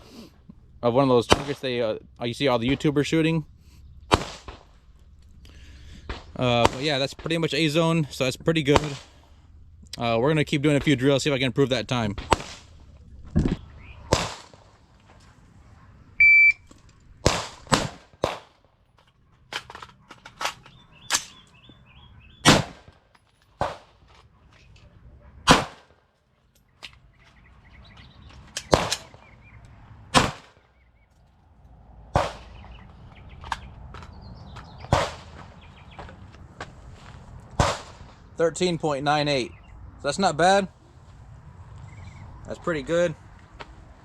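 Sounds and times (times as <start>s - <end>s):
gunshots: 1.2s - 1.9s, 4.1s - 4.9s, 5.8s - 9.3s, 12.0s - 12.9s, 13.6s - 14.8s, 17.2s - 18.6s, 22.4s - 23.0s, 23.6s - 24.0s, 25.4s - 26.0s, 28.6s - 29.3s, 30.1s - 30.7s, 32.1s - 33.6s, 34.8s - 35.6s, 37.5s - 38.3s
shot timer beep: 16.2s - 16.6s.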